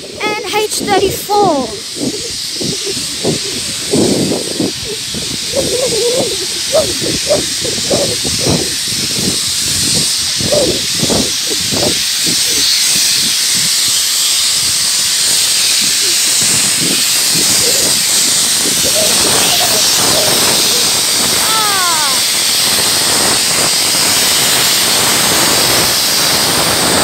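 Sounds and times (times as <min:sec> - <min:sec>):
steam locomotive hissing: 0:00.0 - 0:27.0.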